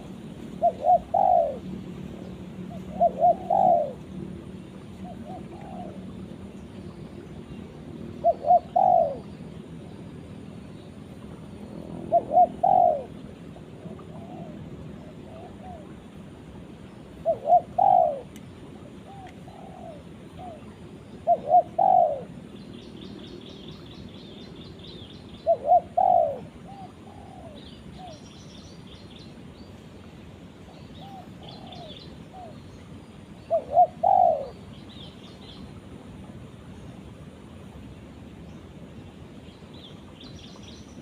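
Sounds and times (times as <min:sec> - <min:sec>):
dove cooing: 0:00.6 - 0:01.7, 0:02.7 - 0:04.1, 0:05.0 - 0:06.1, 0:08.2 - 0:09.3, 0:12.0 - 0:13.2, 0:13.8 - 0:16.0, 0:17.2 - 0:18.4, 0:19.0 - 0:22.4, 0:25.4 - 0:28.2, 0:31.0 - 0:32.6, 0:33.4 - 0:34.6.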